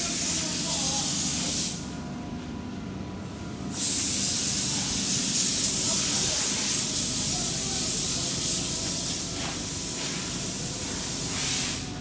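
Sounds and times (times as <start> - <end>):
compressed air hissing: 3.6 - 11.9.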